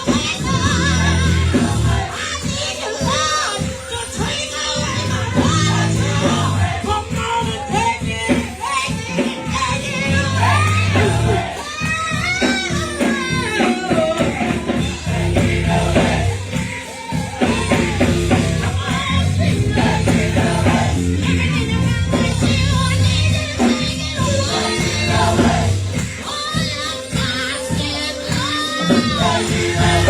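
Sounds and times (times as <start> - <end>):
bass and drums: 0.0 - 30.0
gospel choir singing: 0.0 - 30.0
lead vocal singing: 0.0 - 30.0.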